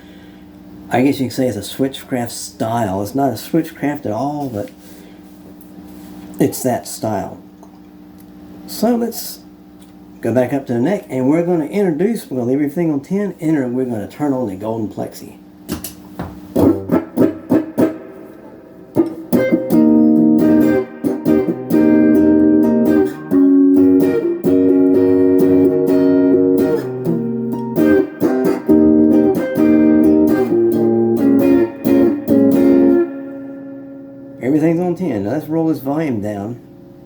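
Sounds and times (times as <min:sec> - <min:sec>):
overdriven electric guitar chords: 0:16.5 - 0:37.0
picked guitar notes: 0:16.5 - 0:37.0.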